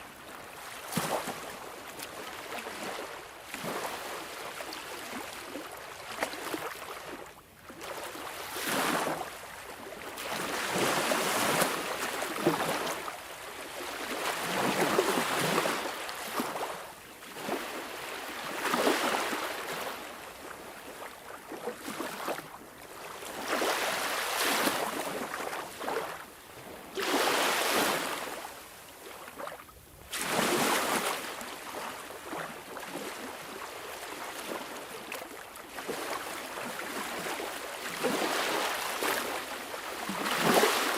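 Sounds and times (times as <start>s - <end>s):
sea waves washing in: 26.8s - 28.8s.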